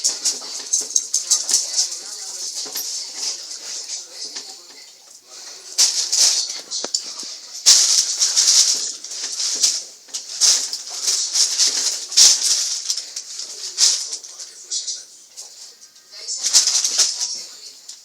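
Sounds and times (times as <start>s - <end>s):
kitten and dog play-wrestling: 0.0s - 14.2s.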